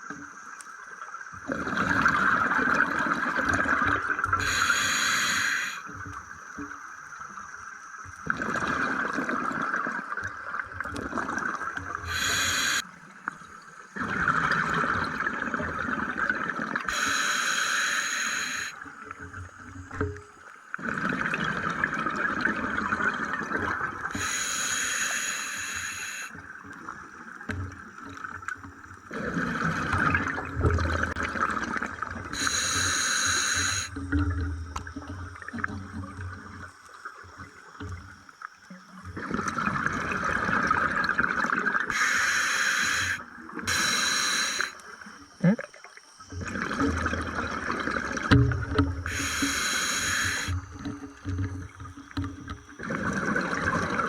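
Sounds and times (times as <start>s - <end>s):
regulator breathing hiss: 4.4s - 5.9s, 12.0s - 12.9s, 16.9s - 18.8s, 24.1s - 26.4s, 32.4s - 34.0s, 41.9s - 45.0s, 49.0s - 50.9s
exhaled bubbles rushing: 14.0s - 16.9s, 29.1s - 32.7s, 39.1s - 41.9s, 45.4s - 54.0s.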